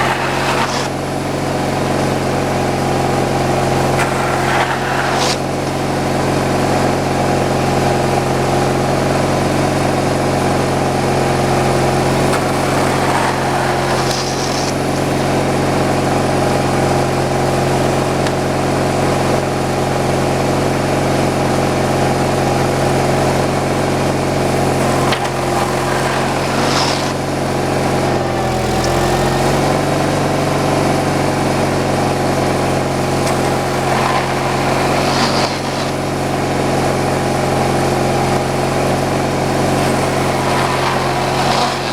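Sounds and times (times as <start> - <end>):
machine engine running: 0.0 - 41.9.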